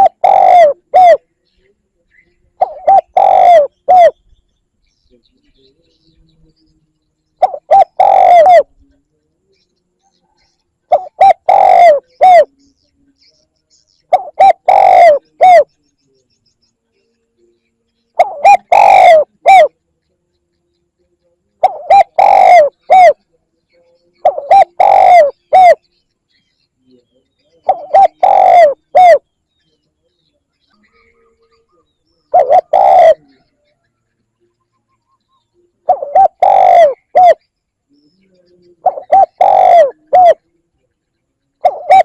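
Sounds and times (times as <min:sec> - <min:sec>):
dove cooing: 0:00.0 - 0:01.3, 0:02.6 - 0:04.2, 0:07.4 - 0:09.0, 0:10.4 - 0:12.6, 0:14.1 - 0:15.7, 0:18.2 - 0:19.8, 0:21.6 - 0:23.3, 0:24.2 - 0:25.8, 0:27.5 - 0:29.3, 0:30.9 - 0:33.9, 0:34.8 - 0:37.4, 0:38.3 - 0:40.5, 0:41.6 - 0:42.0.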